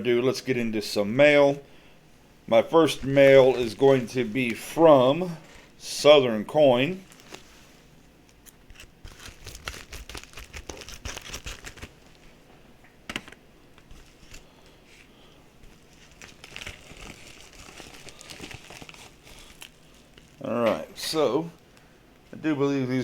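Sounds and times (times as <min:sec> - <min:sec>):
packaging crinkling and tearing: 0:07.0 - 0:07.5, 0:08.3 - 0:12.3, 0:15.6 - 0:20.6.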